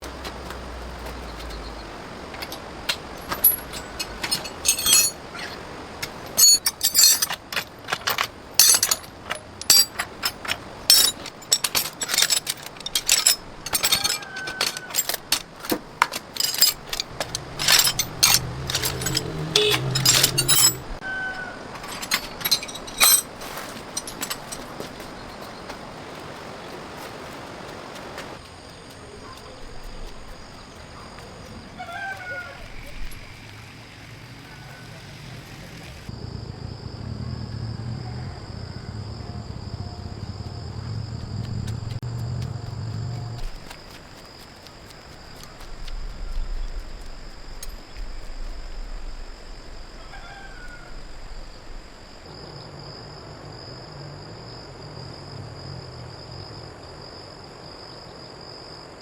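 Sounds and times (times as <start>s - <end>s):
metal tools clinking: 2.4s - 21.0s, 21.7s - 25.0s
low hum: 35.3s - 43.8s.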